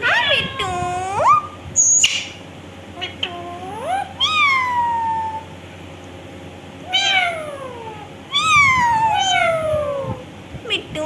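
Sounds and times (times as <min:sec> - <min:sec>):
parrot meow-like calls: 0:03.6 - 0:05.6, 0:06.8 - 0:10.3.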